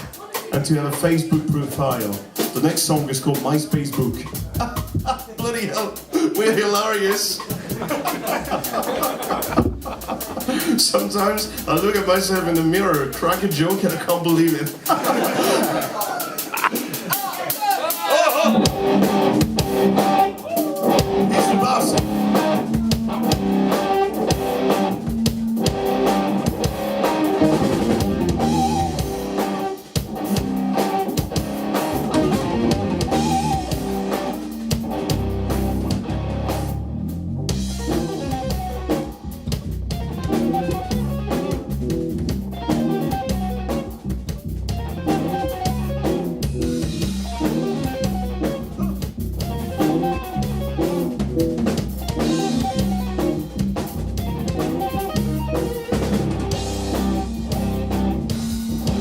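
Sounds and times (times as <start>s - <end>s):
bass guitar: 0.0s - 17.2s, 18.1s - 59.0s
drum kit: 0.0s - 59.0s
electric guitar: 18.1s - 59.0s.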